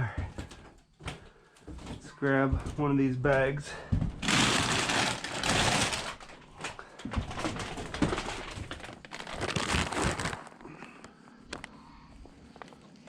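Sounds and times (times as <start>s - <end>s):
feed bag crinkling and rustling: 4.2s - 10.9s.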